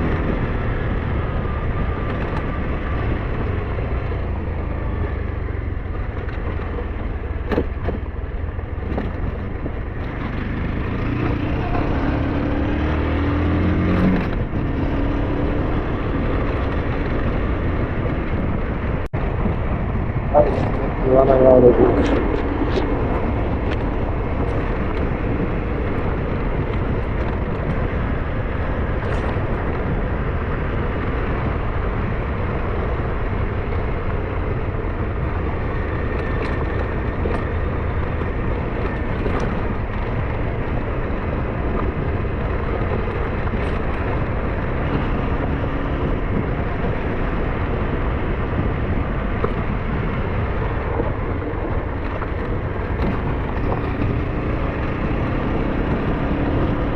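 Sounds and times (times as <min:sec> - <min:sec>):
road and riding noise: 0:00.0 - 0:56.9
scooter engine running: 0:22.0 - 0:56.9.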